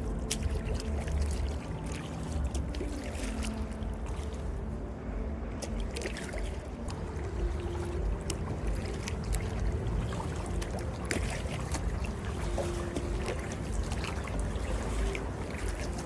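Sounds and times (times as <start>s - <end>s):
paddle strokes splashing: 0.0s - 16.0s
steady low rumble: 0.0s - 16.0s.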